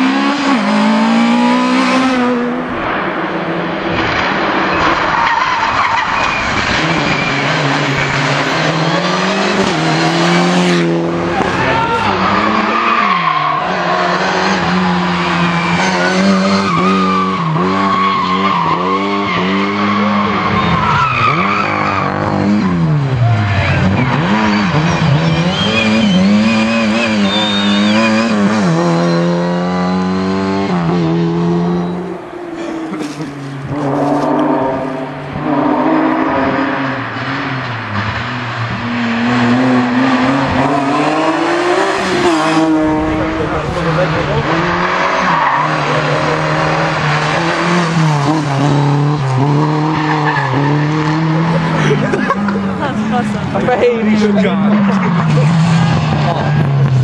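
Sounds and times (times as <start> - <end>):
rally car engine revving: 0.0 - 57.0
tyres squealing: 23.2 - 29.3.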